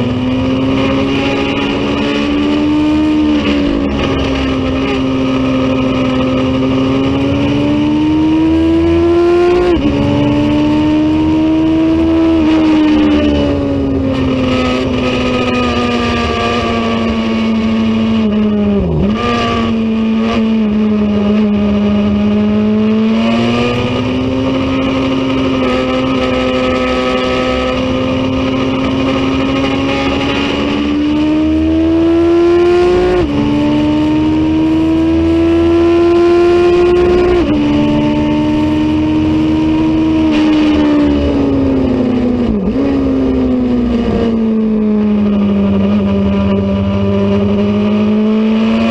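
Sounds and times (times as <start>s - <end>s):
motorcycle engine revving hard: 0.0s - 48.9s.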